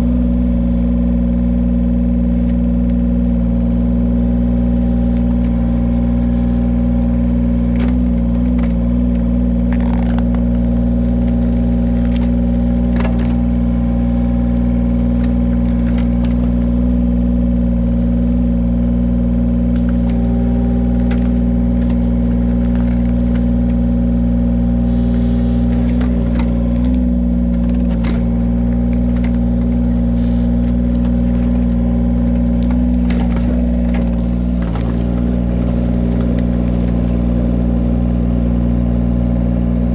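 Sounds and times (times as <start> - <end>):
log splitter engine running: 0.0 - 39.9
sharp knocks and cracks: 7.6 - 16.7, 18.6 - 24.2, 24.8 - 37.2.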